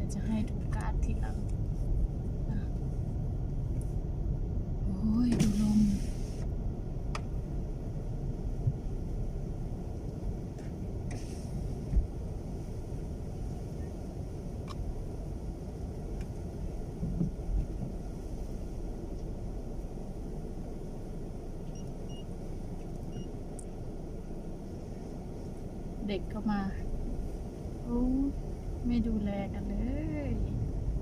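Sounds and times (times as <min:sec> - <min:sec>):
car cabin road and wind noise: 0:00.0 - 0:31.0
faint short beeps: 0:23.1 - 0:23.4.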